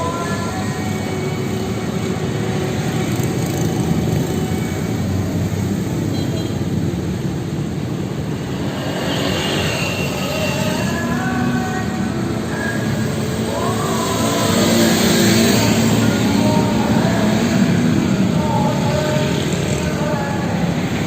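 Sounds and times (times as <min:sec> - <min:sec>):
scooter engine running: 0:00.0 - 0:06.2.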